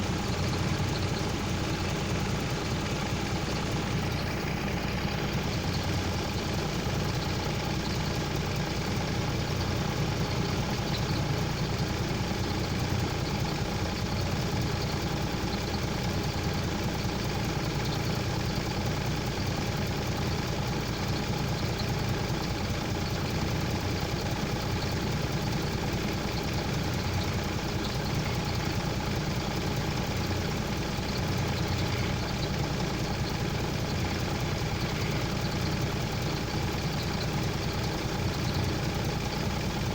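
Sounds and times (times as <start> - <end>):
heavy vehicle engine idling: 0.0 - 39.9.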